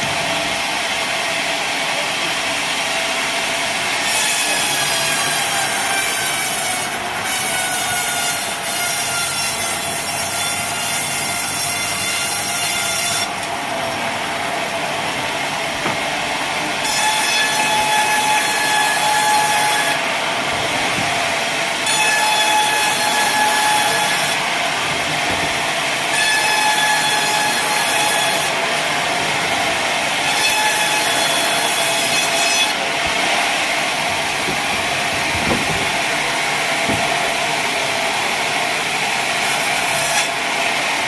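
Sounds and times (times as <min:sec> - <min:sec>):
saw blade cutting a log: 0:03.9 - 0:13.6, 0:16.8 - 0:20.0, 0:21.8 - 0:24.4, 0:26.0 - 0:28.9, 0:30.2 - 0:36.0, 0:39.2 - 0:40.6.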